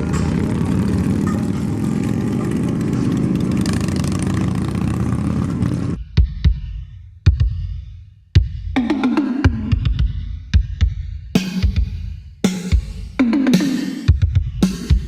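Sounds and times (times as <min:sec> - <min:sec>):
car engine running: 0:00.0 - 0:06.0.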